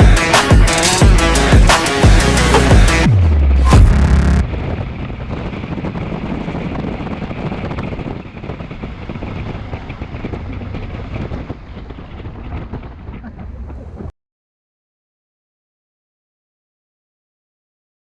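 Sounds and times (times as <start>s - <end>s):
off-road vehicle engine running: 1.1s - 14.1s
rough tyre and body noise: 3.8s - 14.1s
wind buffeting microphone: 4.5s - 14.1s.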